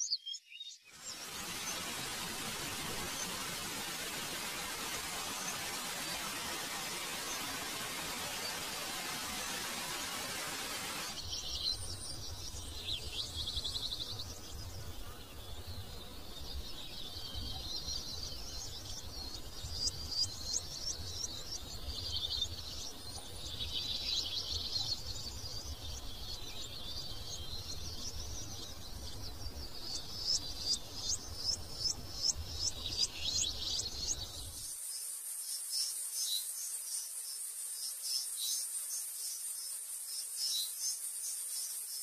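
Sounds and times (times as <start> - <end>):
steady hiss: 1.0 - 42.0.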